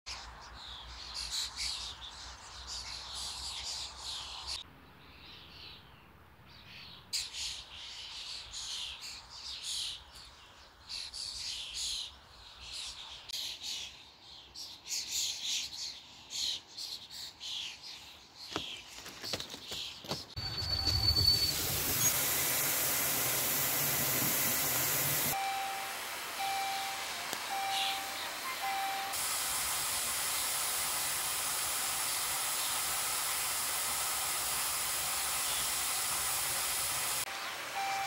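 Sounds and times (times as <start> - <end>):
birds singing: 24.5 - 29.2, 37.2 - 38.0.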